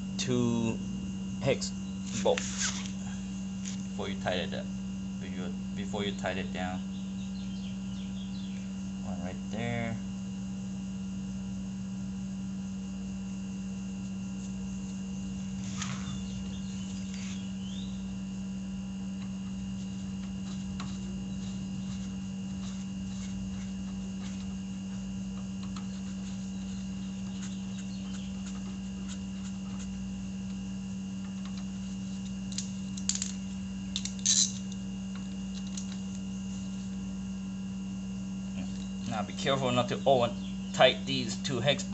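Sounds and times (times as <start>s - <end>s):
electrical hum: 0.0s - 41.9s.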